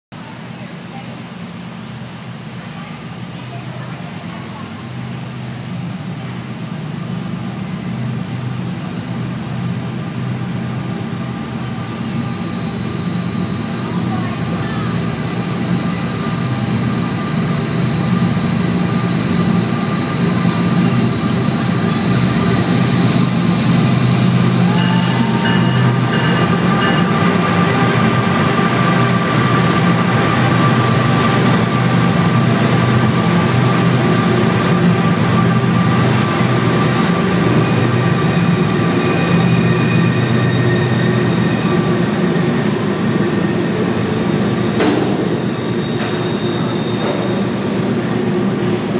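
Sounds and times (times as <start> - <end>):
freight train rumbling past: 0.2 - 48.9
thin high-pitched tones: 24.6 - 27.2.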